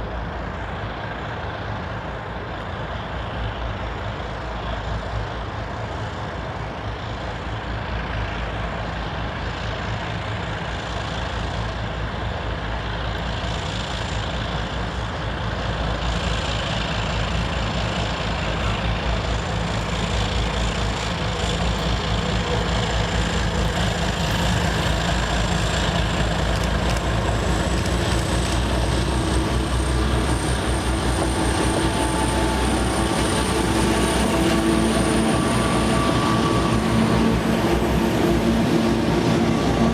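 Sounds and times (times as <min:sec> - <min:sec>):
diesel locomotive engine drone: 0:00.0 - 0:39.9
high whine rising in pitch: 0:27.4 - 0:39.9.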